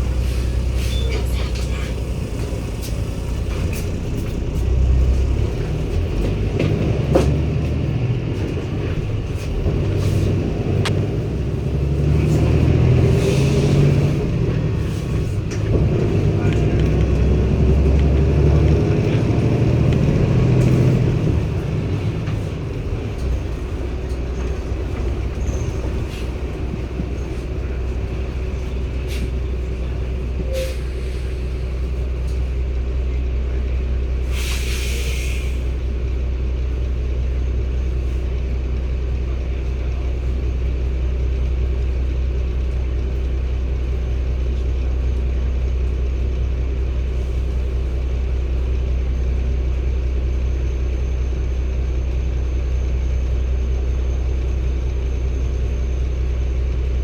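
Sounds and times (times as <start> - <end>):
bus diesel engine droning: 0.0 - 57.0
air hiss: 34.3 - 35.7.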